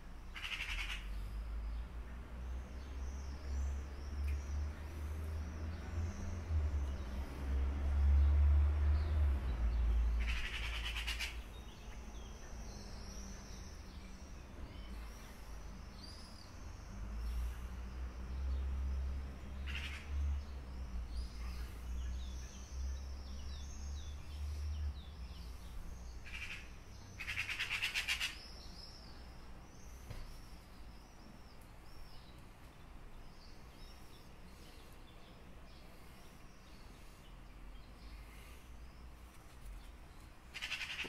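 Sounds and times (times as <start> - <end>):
garden birds chirping: 0.0 - 41.0
loud rapid bird rattle: 0.4 - 1.0, 10.2 - 11.4, 26.2 - 28.4, 40.5 - 41.0.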